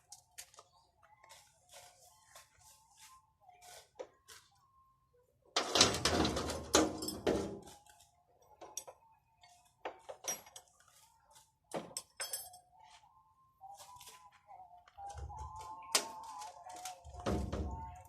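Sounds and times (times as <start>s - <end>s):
metal objects clattering: 5.6s - 7.7s.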